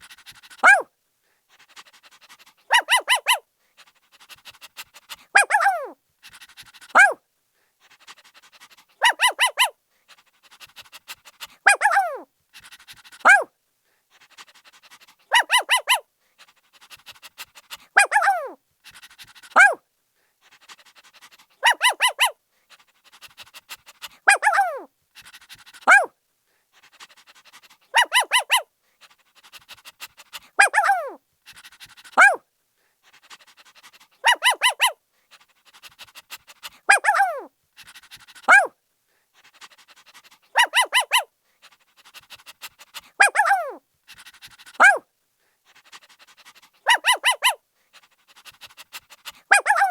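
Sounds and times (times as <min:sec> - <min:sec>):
puppy yelps sliding down: 0:00.6 - 0:00.9, 0:02.7 - 0:03.4, 0:05.4 - 0:06.0, 0:06.9 - 0:07.2, 0:09.0 - 0:09.7, 0:11.7 - 0:12.2, 0:13.2 - 0:13.5, 0:15.3 - 0:16.0, 0:18.0 - 0:18.6, 0:19.5 - 0:19.8, 0:21.6 - 0:22.4, 0:24.3 - 0:24.9, 0:25.9 - 0:26.1, 0:28.0 - 0:28.6, 0:30.6 - 0:31.2, 0:32.2 - 0:32.4, 0:34.2 - 0:35.0, 0:36.9 - 0:37.5, 0:38.4 - 0:38.7, 0:40.6 - 0:41.3, 0:43.2 - 0:43.8, 0:44.8 - 0:45.0, 0:46.9 - 0:47.6, 0:49.5 - 0:49.9
puppy yipping: 0:00.6 - 0:00.9, 0:02.7 - 0:03.4, 0:05.4 - 0:06.0, 0:06.9 - 0:07.2, 0:09.0 - 0:09.7, 0:11.7 - 0:12.2, 0:13.2 - 0:13.5, 0:15.3 - 0:16.0, 0:18.0 - 0:18.6, 0:19.5 - 0:19.8, 0:21.6 - 0:22.4, 0:24.3 - 0:24.9, 0:25.8 - 0:26.1, 0:27.9 - 0:28.7, 0:30.6 - 0:31.2, 0:32.2 - 0:32.4, 0:34.2 - 0:35.0, 0:36.9 - 0:37.5, 0:38.4 - 0:38.7, 0:40.6 - 0:41.3, 0:43.2 - 0:43.8, 0:44.8 - 0:45.0, 0:46.8 - 0:47.6, 0:49.5 - 0:49.9.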